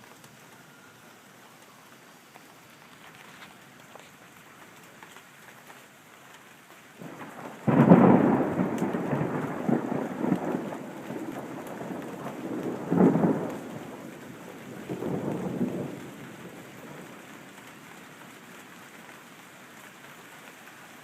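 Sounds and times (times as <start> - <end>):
steady rain: 0.0 - 21.0
thunder clap and rumble: 7.0 - 17.8.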